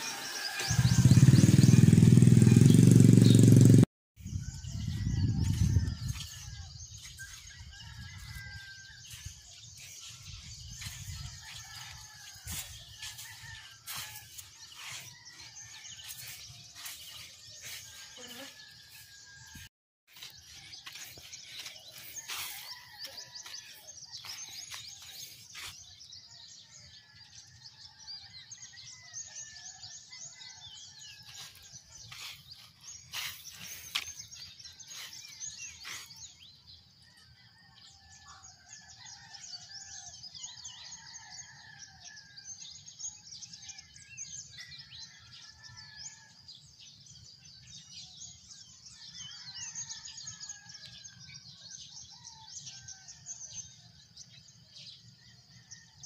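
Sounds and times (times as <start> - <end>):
small birds chirping: 0.0 - 26.4, 30.4 - 36.8.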